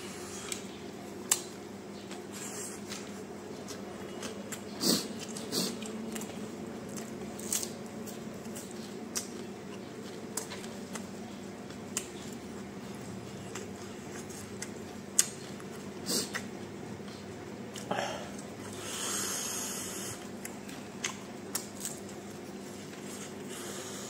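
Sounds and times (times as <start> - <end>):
steady low hum: 0.0 - 24.0
person chewing food: 1.3 - 24.0.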